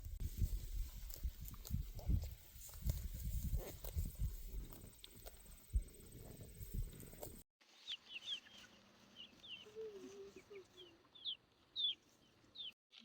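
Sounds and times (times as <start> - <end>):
chickens chirping: 7.9 - 12.7.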